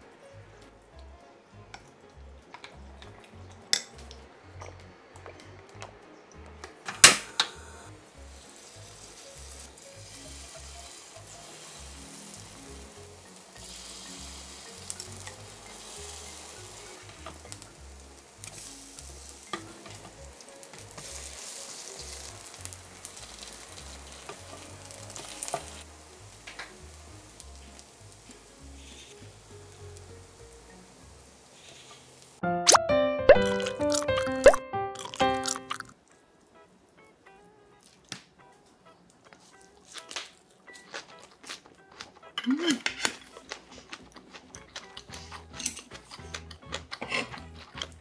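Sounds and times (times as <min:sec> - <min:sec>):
pancakes sizzling in oil: 0:08.1 - 0:32.4.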